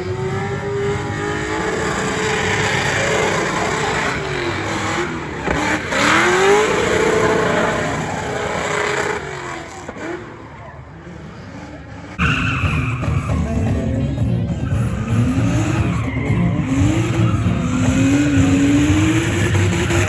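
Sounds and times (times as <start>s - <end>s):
car engine revving hard: 0.0s - 10.4s, 13.0s - 20.0s
tyres squealing: 12.1s - 20.0s.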